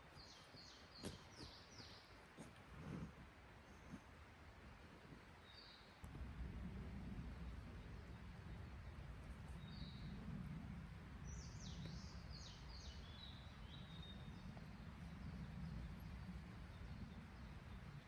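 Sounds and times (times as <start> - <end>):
songbird singing: 0.0 - 2.5, 5.3 - 6.2, 7.1 - 18.0
faint low rumble: 0.0 - 18.0.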